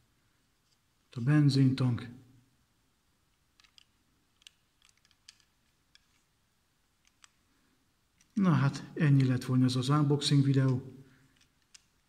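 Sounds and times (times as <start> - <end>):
small clicks handling a model car: 3.3 - 6.4, 7.0 - 7.4, 8.1 - 8.4, 11.3 - 12.0.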